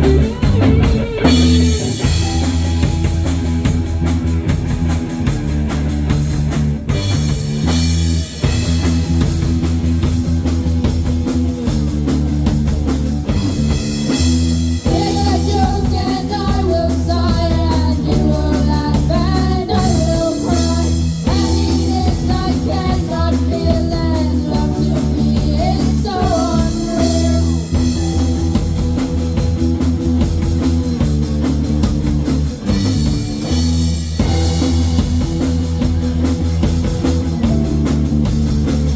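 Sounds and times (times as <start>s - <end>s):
bass guitar: 0.0s - 38.9s
bending guitar lead melody: 0.0s - 38.9s
drum kit: 0.0s - 38.9s
electric guitar: 0.0s - 38.9s.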